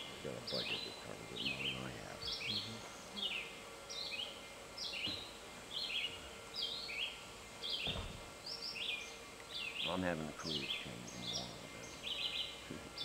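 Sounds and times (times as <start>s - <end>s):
faint outdoor background: 0.0s - 13.0s
soft low thump: 7.8s - 8.3s
bird calling high notes: 9.5s - 13.0s.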